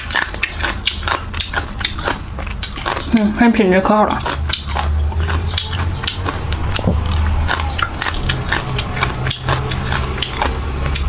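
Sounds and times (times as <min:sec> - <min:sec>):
crunchy chewing: 0:00.0 - 0:11.0.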